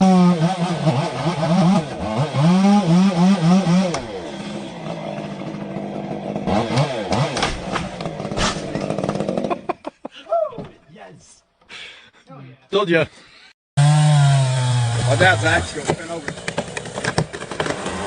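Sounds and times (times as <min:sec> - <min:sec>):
small petrol engine revving: 0:00.0 - 0:09.8, 0:13.8 - 0:18.0.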